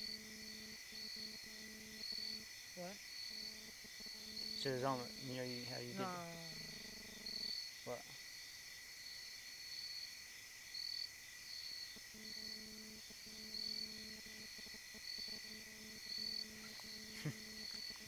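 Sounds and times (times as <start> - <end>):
insects chirping: 0.0 - 18.0
low steady hum: 3.2 - 7.5, 12.0 - 18.0
high drone: 3.4 - 7.5.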